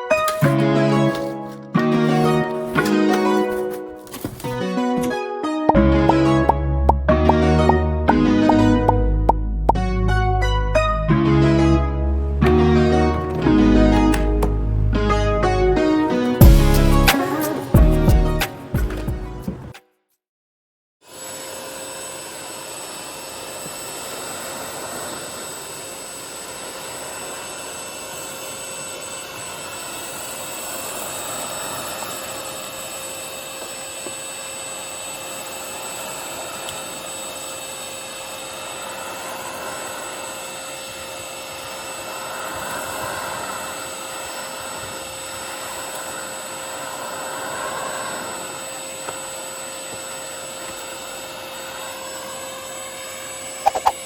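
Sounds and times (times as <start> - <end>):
vacuum cleaner motor whine: 0.0 - 5.2, 12.1 - 17.8, 21.0 - 54.0
rushing air: 38.6 - 49.0.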